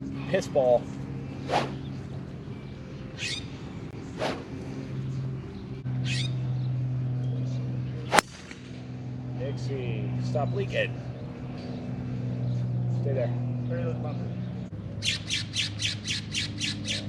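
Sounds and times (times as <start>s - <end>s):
steady low hum: 0.0s - 17.0s
short bird calls: 3.1s - 3.6s, 6.0s - 6.4s
sharp crack: 8.1s - 8.8s.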